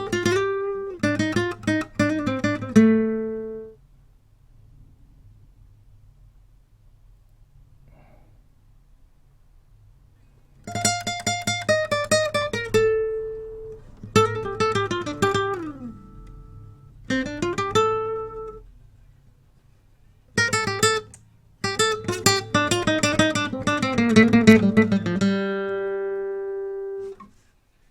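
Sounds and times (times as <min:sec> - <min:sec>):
picked guitar notes: 0:00.0 - 0:03.8, 0:10.6 - 0:18.8, 0:20.4 - 0:27.4.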